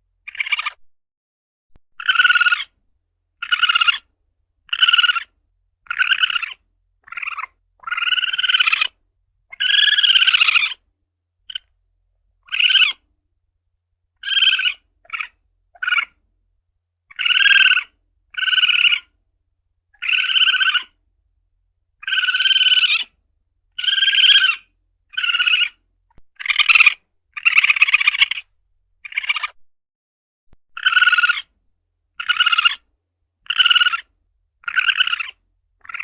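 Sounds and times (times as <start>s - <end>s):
civet calling: 0.3s - 0.8s, 2.0s - 2.8s, 3.4s - 4.1s, 4.7s - 10.8s, 11.5s - 11.7s, 12.4s - 13.0s, 14.2s - 16.2s, 17.1s - 19.2s, 19.9s - 21.0s, 22.0s - 25.8s, 26.4s - 29.6s, 30.7s - 36.0s.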